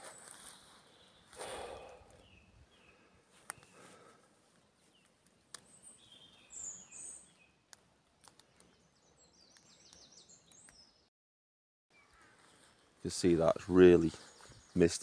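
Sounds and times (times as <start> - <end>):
faint songbird chirps: 0.0 - 11.1, 11.9 - 15.0.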